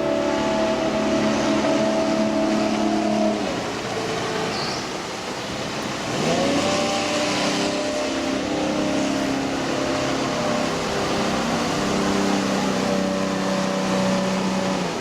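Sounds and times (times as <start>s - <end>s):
boat engine revving: 0.0s - 15.0s
constant rushing noise: 0.0s - 15.0s.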